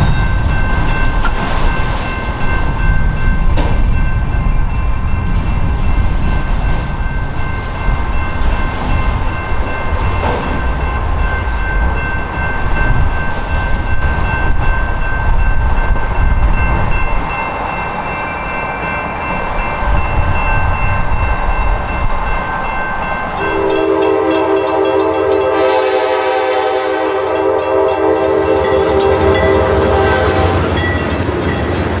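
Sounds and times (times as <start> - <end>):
high ringing tones: 0.0 - 31.7
freight train rolling past: 0.0 - 32.0
diesel train horn: 23.4 - 30.9.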